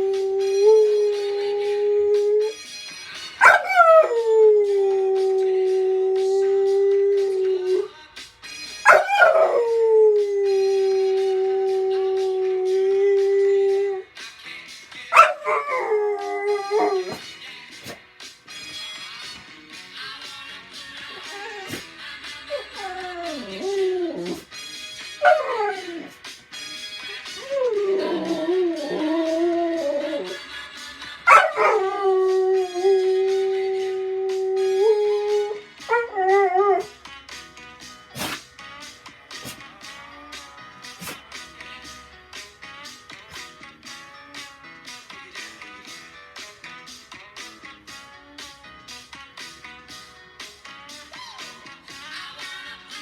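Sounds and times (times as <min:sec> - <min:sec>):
dog howling: 0:00.0 - 0:02.6, 0:03.4 - 0:07.9, 0:08.9 - 0:14.0, 0:15.1 - 0:17.2, 0:21.2 - 0:21.8, 0:22.5 - 0:24.5, 0:25.2 - 0:26.2, 0:27.4 - 0:30.4, 0:31.3 - 0:36.9
faint music with a beat: 0:00.0 - 0:53.0.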